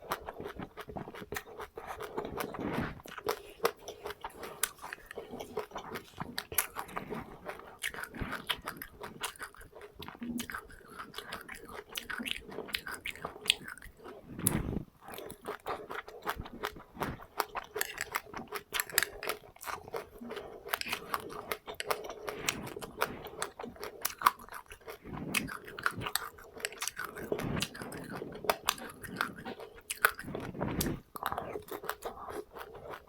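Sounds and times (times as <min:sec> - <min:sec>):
soft mouth sounds: 0:00.0 - 0:33.0.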